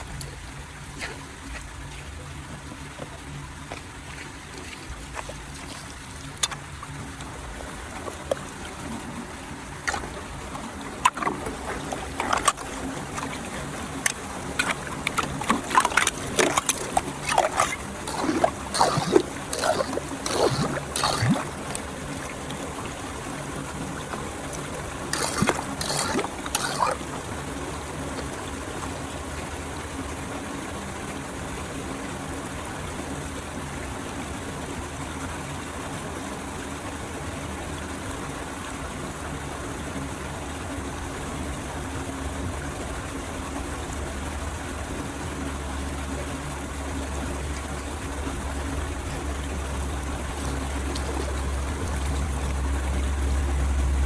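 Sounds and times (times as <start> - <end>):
water flowing into drain: 0.0 - 29.6
water splashing and gurgling: 0.0 - 54.0.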